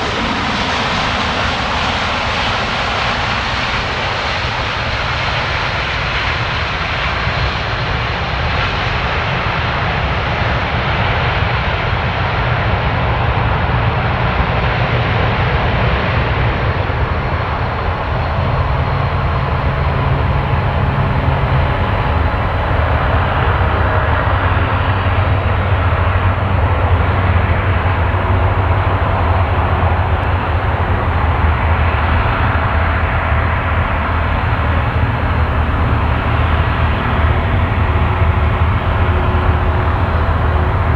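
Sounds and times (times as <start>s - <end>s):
jet engines running: 14.7s - 40.9s.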